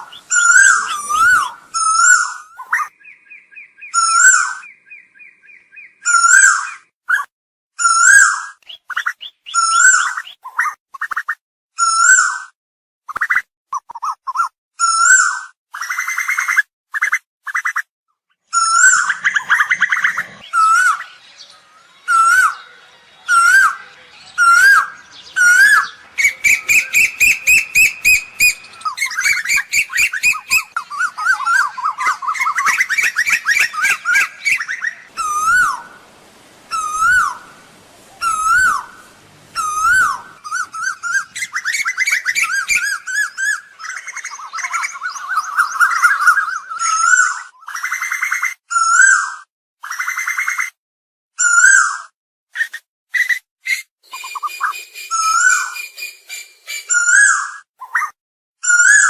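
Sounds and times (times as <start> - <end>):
koel calling: 0.0 - 3.2, 18.6 - 47.3.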